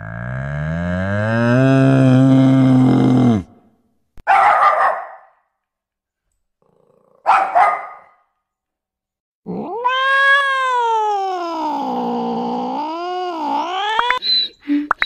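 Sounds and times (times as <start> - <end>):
cat meowing: 9.6 - 12.2
cat harsh call: 9.7 - 12.1.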